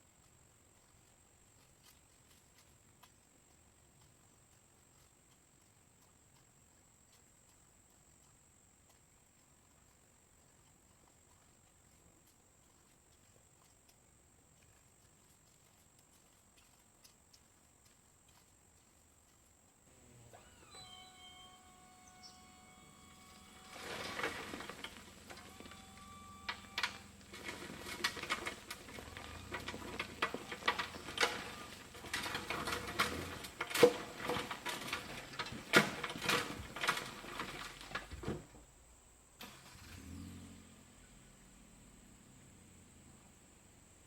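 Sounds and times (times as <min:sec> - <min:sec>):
electric motor whining: 0:19.9 - 0:32.0
stone sliding out of dump bed: 0:23.0 - 0:38.4.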